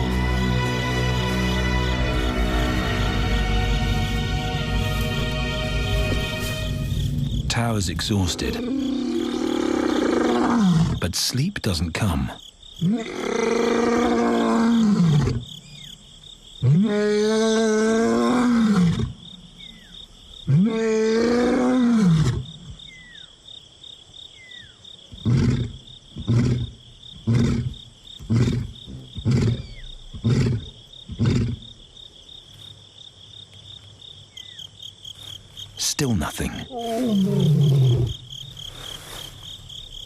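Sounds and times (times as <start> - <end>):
insect trill: 0.0 - 40.0
lion roaring: 8.2 - 11.0, 12.8 - 15.5, 16.6 - 19.1, 20.4 - 22.4, 25.2 - 31.7, 36.6 - 38.3.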